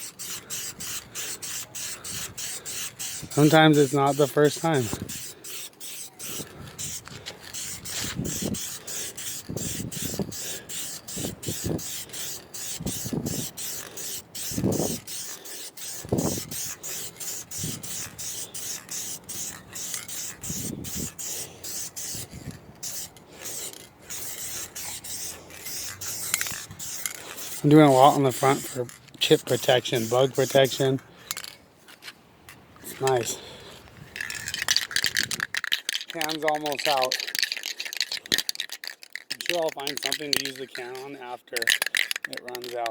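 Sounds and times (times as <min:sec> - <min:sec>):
aerosol spray can hissing: 0:00.0 - 0:28.8, 0:29.4 - 0:30.8.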